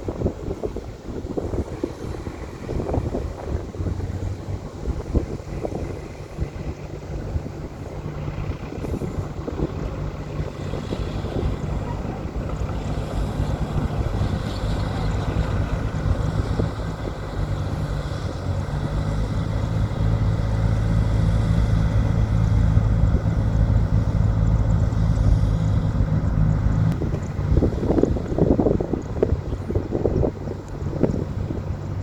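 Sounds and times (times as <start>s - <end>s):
diesel machine engine hum: 0.0s - 32.0s.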